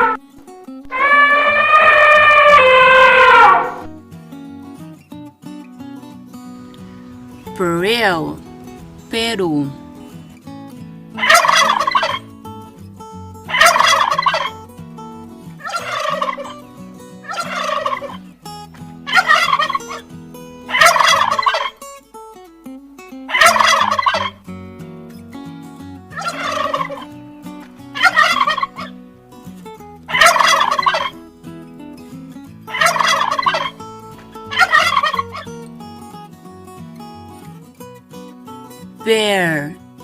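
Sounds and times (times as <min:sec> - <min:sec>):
turkey gobbling: 0:00.0 - 0:00.2, 0:00.9 - 0:03.9, 0:11.2 - 0:12.2, 0:13.5 - 0:14.6, 0:15.6 - 0:16.6, 0:17.2 - 0:18.2, 0:19.1 - 0:20.0, 0:20.7 - 0:21.8, 0:23.3 - 0:24.4, 0:26.1 - 0:27.1, 0:28.0 - 0:28.9, 0:30.1 - 0:31.2, 0:32.7 - 0:33.8, 0:34.4 - 0:35.5.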